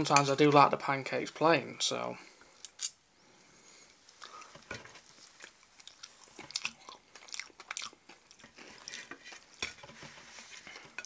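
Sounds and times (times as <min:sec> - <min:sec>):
wet chewing smacks: 0:05.1 - 0:09.7.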